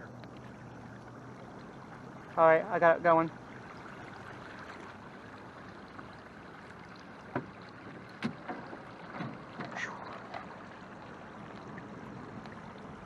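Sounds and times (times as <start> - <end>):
paddle knocks and splashes: 3.6 - 13.0.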